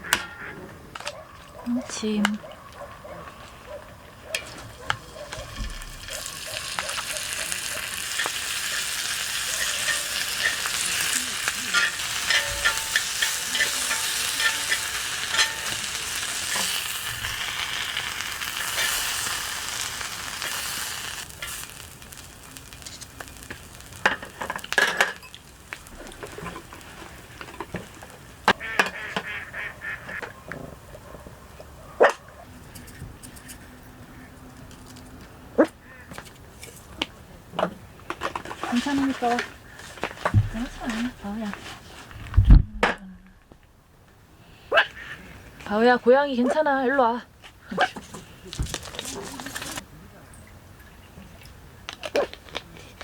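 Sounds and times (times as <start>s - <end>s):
food sizzling in a pan: 5.4s - 28.8s, 48.7s - 49.8s.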